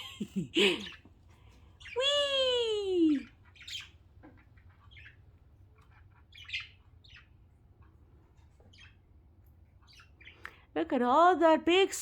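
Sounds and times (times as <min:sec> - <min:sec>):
budgerigars chirping: 0:00.6 - 0:02.2, 0:03.1 - 0:10.7.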